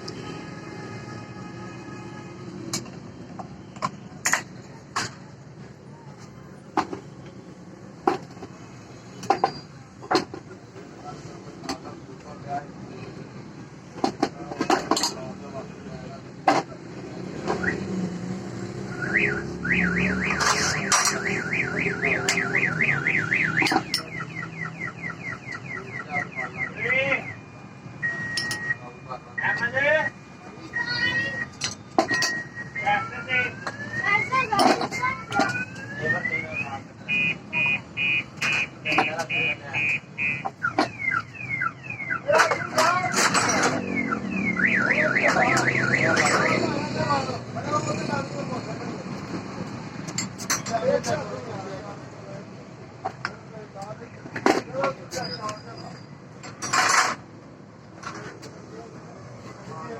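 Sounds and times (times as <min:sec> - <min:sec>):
electronic alarm siren warbling: 0:18.8 - 0:39.0, 0:43.5 - 0:46.8.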